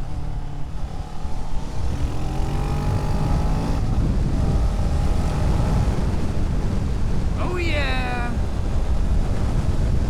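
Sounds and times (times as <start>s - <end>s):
motorcycle engine accelerating: 0.0s - 6.4s.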